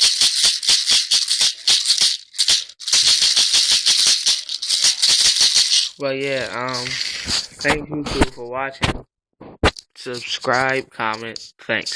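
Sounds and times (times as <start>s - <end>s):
bbs rattling in plastic bottle: 0.0s - 8.3s.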